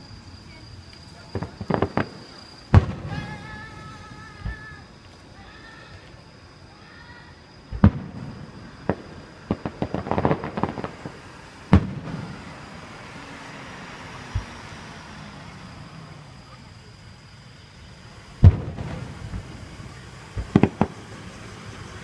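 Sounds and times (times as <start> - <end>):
crackling firework reports: 0.0 - 22.0
faint firework boom: 1.2 - 4.8, 7.7 - 12.6, 14.2 - 14.7, 18.4 - 21.2
firework bangs: 1.2 - 5.0, 7.7 - 16.7, 17.9 - 22.0.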